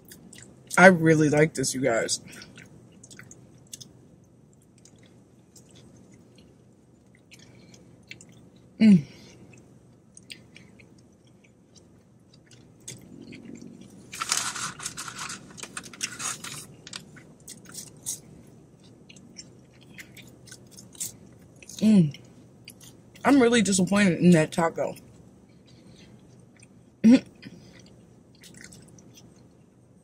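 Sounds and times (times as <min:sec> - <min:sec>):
person chewing: 0:00.0 - 0:00.8, 0:02.2 - 0:23.2, 0:25.6 - 0:29.6
person humming: 0:08.8 - 0:09.2
crinkling and crunching: 0:11.7 - 0:18.2.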